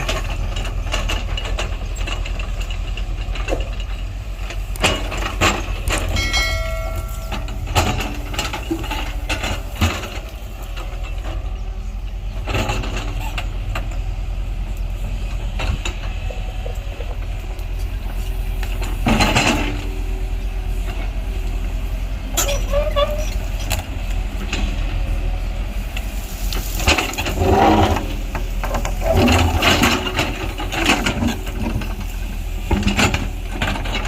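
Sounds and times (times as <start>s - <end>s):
metal clanks and knocks: 0.0s - 14.1s, 15.2s - 20.0s, 26.7s - 34.0s
diesel engine running: 0.0s - 34.0s.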